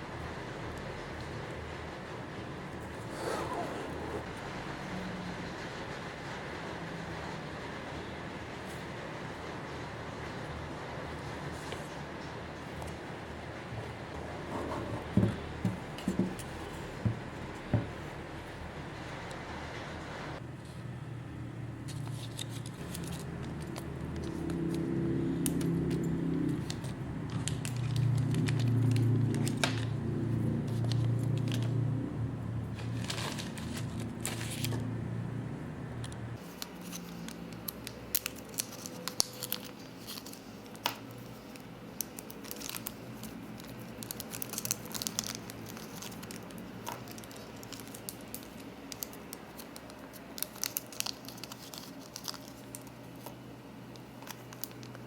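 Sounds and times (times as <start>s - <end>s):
crinkling plastic and paper: 21.9s - 31.9s, 32.7s - 34.9s, 36.4s - 55.0s
packaging tearing: 36.4s - 55.0s.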